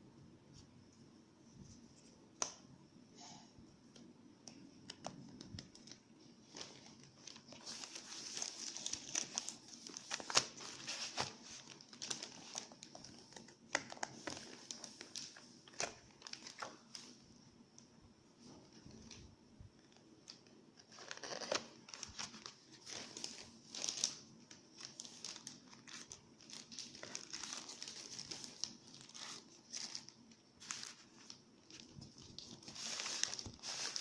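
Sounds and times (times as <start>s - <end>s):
plastic packaging crinkling: 4.6s - 17.2s, 19.9s - 34.0s.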